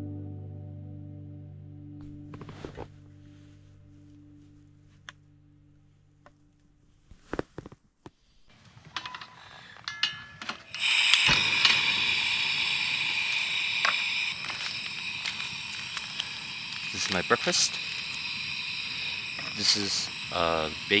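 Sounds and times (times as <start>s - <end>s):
clicks and clatter of handling: 8.6s - 11.3s
food hissing on camp stove: 10.7s - 21.0s.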